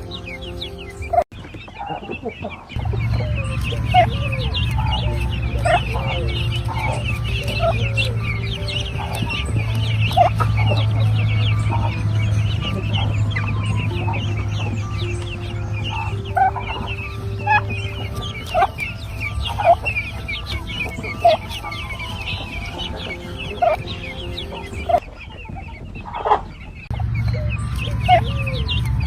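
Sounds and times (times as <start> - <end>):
chicks peeping: 0.0 - 29.0
fowl calling: 0.0 - 29.0
steady low hum: 2.8 - 29.0.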